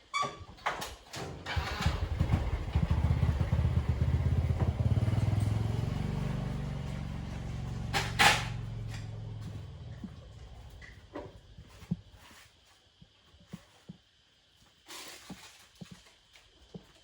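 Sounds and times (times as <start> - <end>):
motorbike engine running: 1.5 - 12.0.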